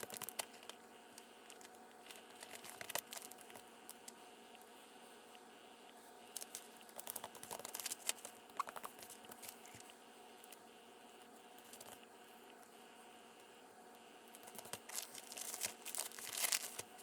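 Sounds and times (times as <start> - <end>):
paper crinkling and rustling: 0.0 - 4.2, 6.4 - 9.9, 11.6 - 12.0, 14.4 - 17.0.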